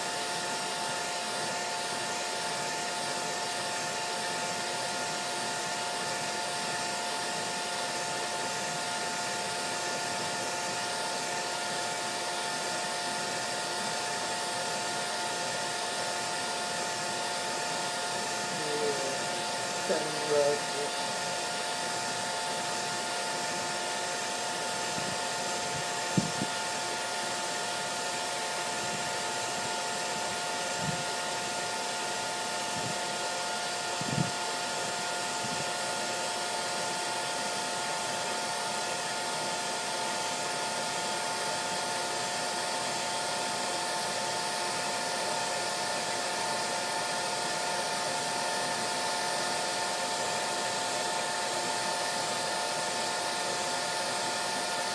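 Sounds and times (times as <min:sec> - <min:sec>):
hair dryer running: 0:00.0 - 0:54.9.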